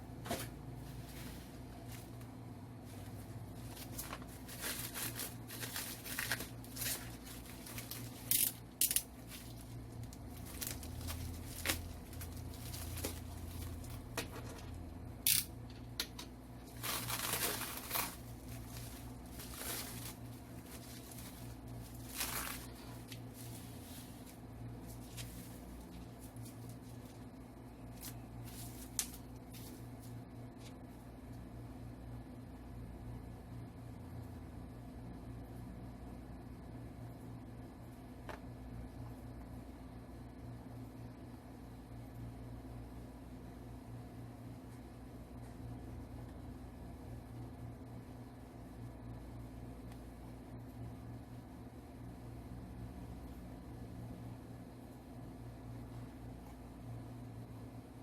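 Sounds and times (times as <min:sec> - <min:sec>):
steady low hum: 0:00.0 - 0:58.0
packaging rustling: 0:03.0 - 0:15.4, 0:16.6 - 0:27.2
wrapping crinkling and tearing: 0:03.6 - 0:27.2, 0:27.9 - 0:30.7.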